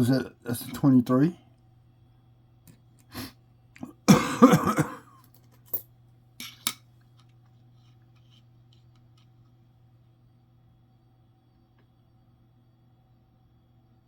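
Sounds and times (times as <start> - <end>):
faint steady hum: 0.0 - 14.0
person coughing: 3.8 - 5.2.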